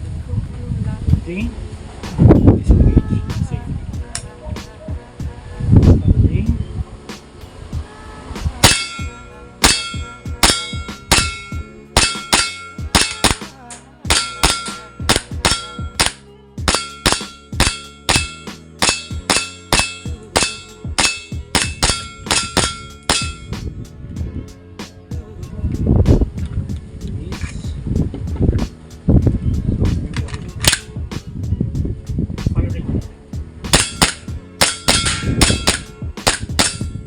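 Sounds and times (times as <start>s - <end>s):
short metallic ring: 8.6s - 13.4s, 14.1s - 23.5s, 33.7s - 37.0s
airsoft pistol shots: 8.6s - 13.5s, 14.1s - 23.4s, 33.7s - 36.8s.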